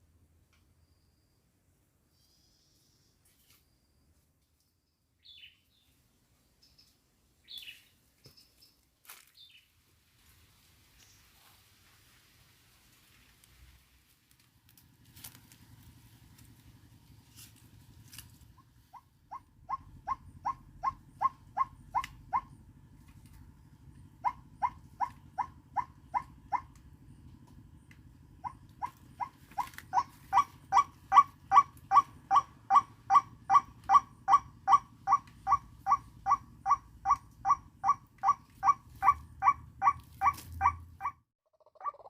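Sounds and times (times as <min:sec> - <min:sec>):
waterhen calling: 0:28.8 - 0:42.0.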